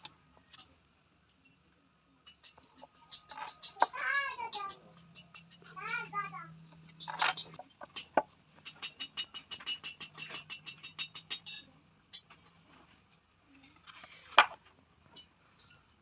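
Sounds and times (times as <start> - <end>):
rapid light taps on metal: 7.9 - 12.3.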